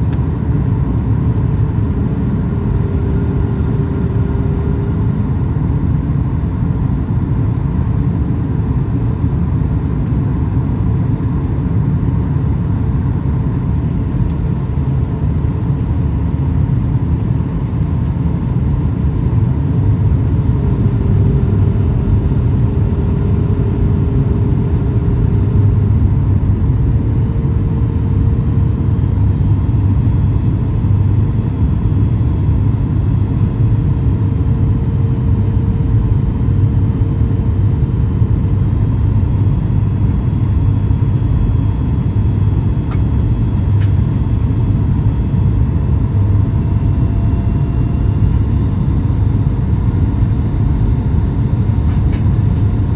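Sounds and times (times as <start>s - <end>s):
aircraft cabin engine rumble: 0.0s - 52.9s
faint hum: 0.0s - 52.9s.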